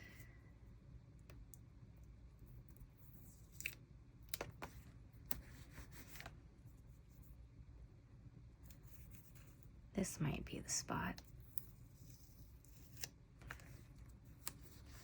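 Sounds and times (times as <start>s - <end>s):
low room hum: 0.0s - 15.0s
paper rustling and clicks: 12.8s - 14.8s.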